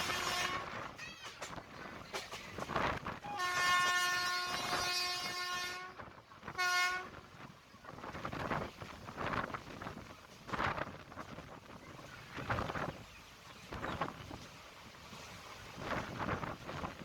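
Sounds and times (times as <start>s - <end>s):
locomotive horn blasts: 0.0s - 0.9s, 3.2s - 7.2s
moving train rumbling: 0.0s - 17.0s.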